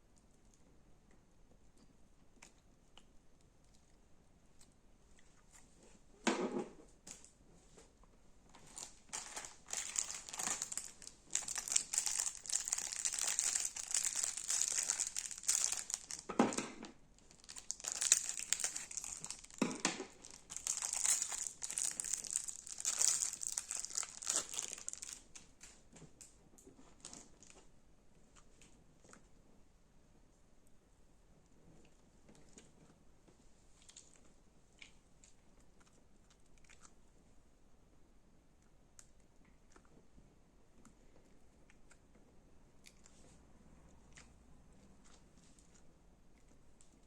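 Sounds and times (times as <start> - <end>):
crunchy slime crackling: 8.6 - 25.7.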